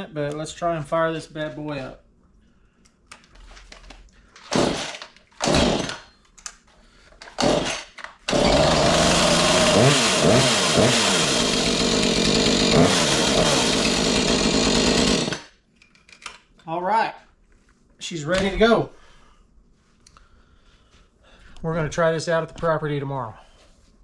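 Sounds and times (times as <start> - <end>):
chainsaw engine revving: 4.5 - 6.1, 7.4 - 15.5.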